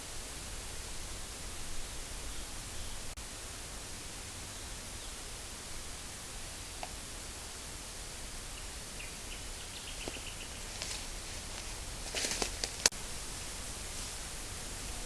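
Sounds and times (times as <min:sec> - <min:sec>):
background hiss: 0:00.0 - 0:15.0
rustle: 0:00.0 - 0:15.0
sharp cracks and snap: 0:10.0 - 0:13.0.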